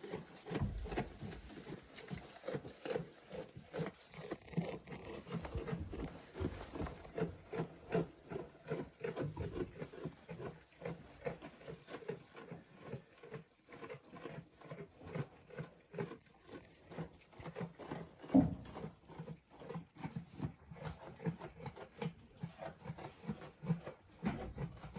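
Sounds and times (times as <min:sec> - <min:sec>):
goats rustling and tapping: 0:00.0 - 0:12.9, 0:16.9 - 0:24.9
goats snuffling: 0:00.0 - 0:19.8.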